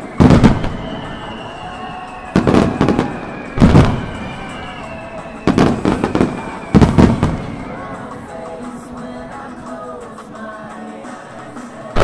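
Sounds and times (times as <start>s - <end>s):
firework shells bursting: 0.0s - 7.7s.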